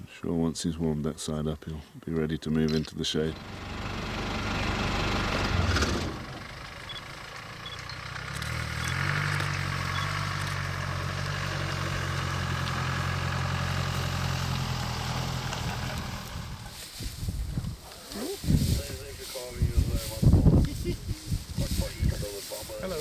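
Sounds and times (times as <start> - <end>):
vehicle engine idling: 3.2 - 16.9.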